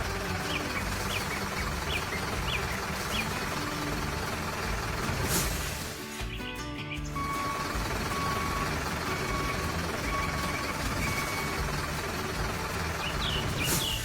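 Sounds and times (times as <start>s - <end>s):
heavy machine engine running: 0.0s - 14.0s
brief hiss: 5.2s - 6.2s.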